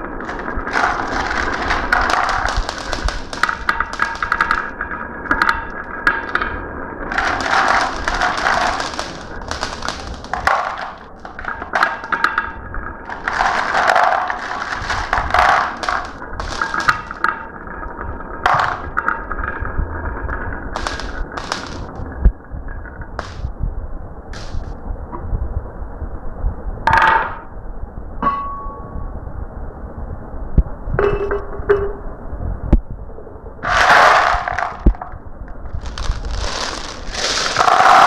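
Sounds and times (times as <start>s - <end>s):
marbles rolling and clattering: 0.0s - 23.5s, 24.3s - 24.7s, 33.6s - 38.0s.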